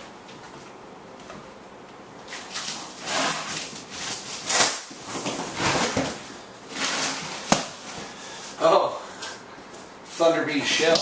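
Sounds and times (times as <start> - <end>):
rustling and scraping in cardboard box: 2.6 - 7.5.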